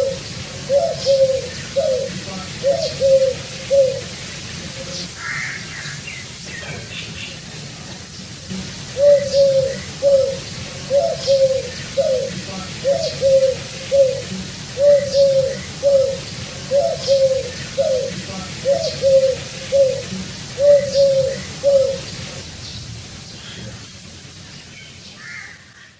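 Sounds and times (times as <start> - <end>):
pigeon cooing: 0.0 - 5.1, 8.9 - 22.4.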